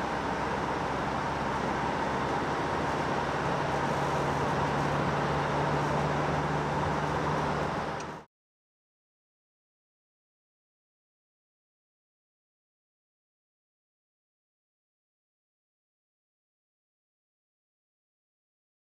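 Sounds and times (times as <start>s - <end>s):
road noise: 0.0s - 8.3s
van diesel engine running: 0.0s - 8.3s.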